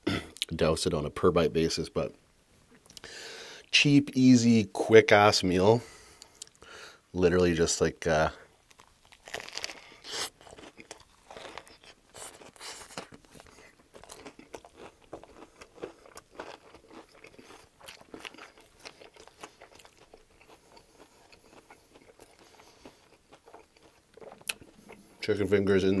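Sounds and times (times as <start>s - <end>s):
wet crunchy chewing: 8.6s - 25.2s.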